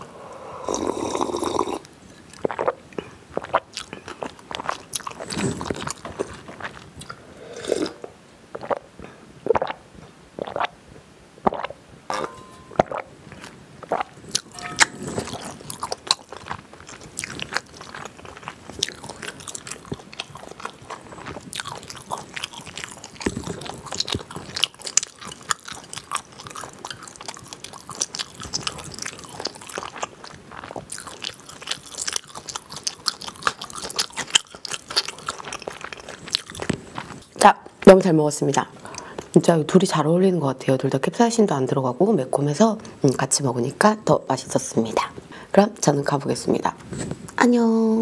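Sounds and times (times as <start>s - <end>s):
mouth chewing food: 0.6s - 9.8s, 10.4s - 10.8s, 11.4s - 11.8s, 12.8s - 39.4s.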